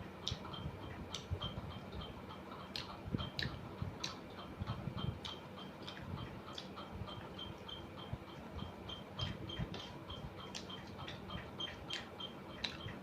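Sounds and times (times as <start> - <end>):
person chewing food: 2.6 - 7.3, 9.2 - 13.0.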